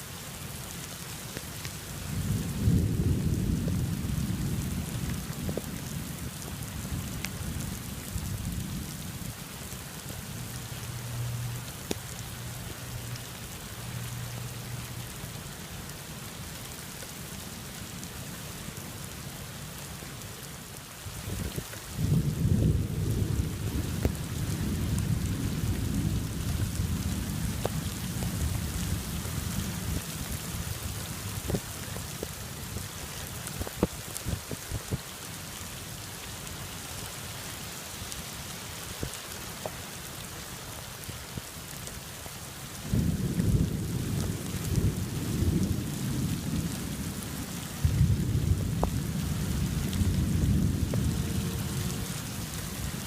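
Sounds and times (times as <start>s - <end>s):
heavy rain falling: 0.0s - 53.0s
raindrops ticking close by: 0.0s - 53.0s
thunder rumbling: 2.1s - 9.4s, 21.2s - 31.8s, 42.8s - 53.0s.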